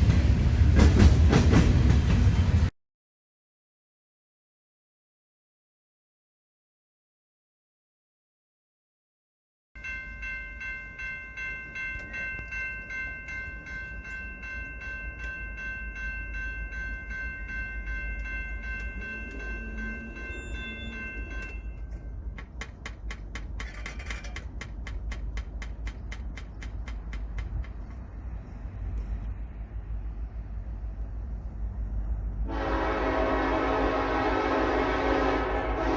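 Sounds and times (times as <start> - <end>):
high ringing tone: 9.8 - 22.3
train wheels clicking over rail joints: 10.1 - 32.5.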